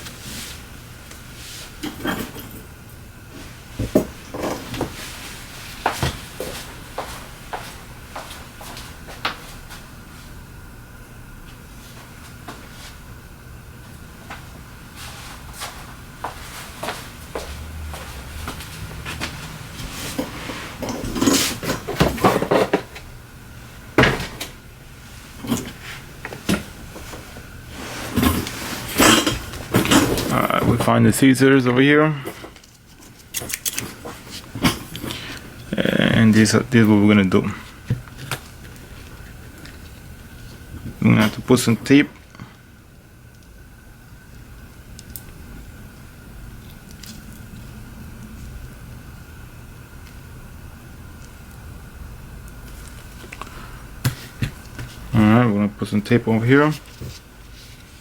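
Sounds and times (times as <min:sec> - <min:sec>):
tools set down on workbench: 0:03.8 - 0:05.0, 0:20.1 - 0:23.0, 0:24.0 - 0:24.5, 0:28.1 - 0:30.9.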